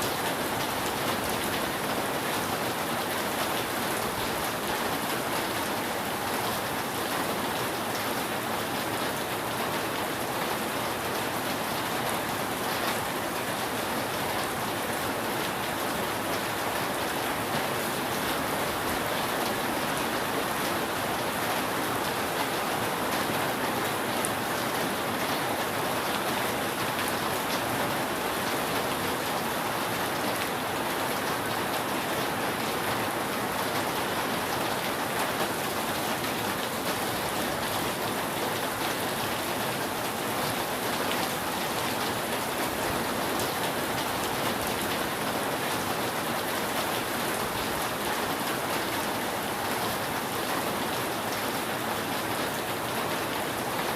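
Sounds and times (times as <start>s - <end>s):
steady rain on a roof: 0.0s - 53.9s.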